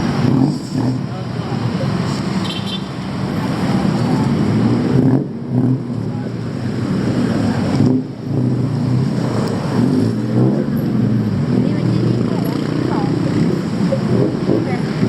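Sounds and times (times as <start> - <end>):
motor vehicles passing: 0.0 - 15.0.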